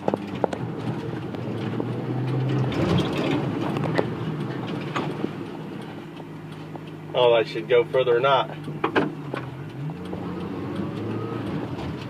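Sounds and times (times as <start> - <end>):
knocks and rattles: 0.0 - 5.2
vehicle engine running: 0.0 - 12.0.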